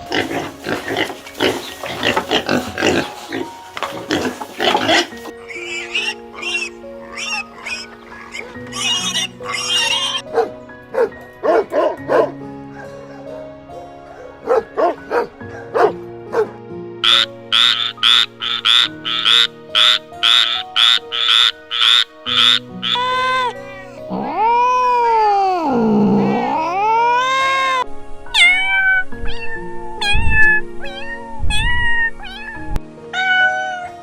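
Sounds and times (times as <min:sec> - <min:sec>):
harsh animal calls: 0:00.0 - 0:10.2, 0:17.0 - 0:24.8
background music: 0:00.0 - 0:34.0.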